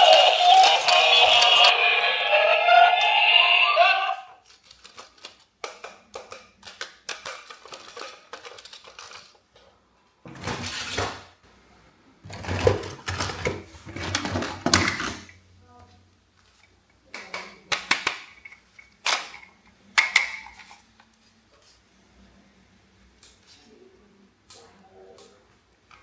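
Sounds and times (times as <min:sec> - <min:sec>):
plastic toys clicking and rattling: 0:00.0 - 0:03.5, 0:04.4 - 0:09.6, 0:12.3 - 0:15.3, 0:16.5 - 0:21.1
music with synthetic singing voice: 0:00.0 - 0:04.4.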